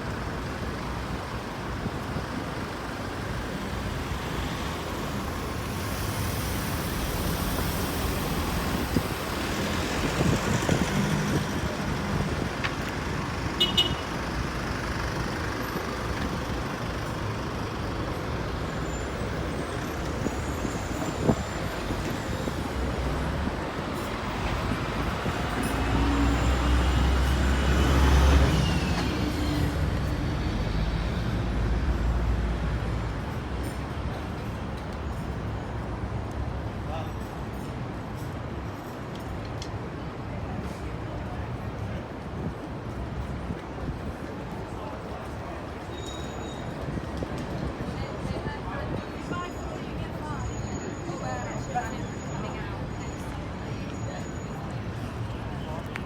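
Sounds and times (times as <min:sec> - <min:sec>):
road traffic noise: 0:00.0 - 0:56.0
wind: 0:00.0 - 0:56.0
vehicle engine passing by: 0:04.2 - 0:13.3.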